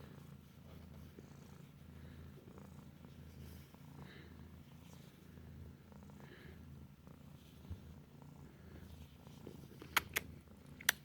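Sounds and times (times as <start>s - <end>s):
cat purring: 0.0s - 11.0s
small clicks: 9.8s - 11.0s.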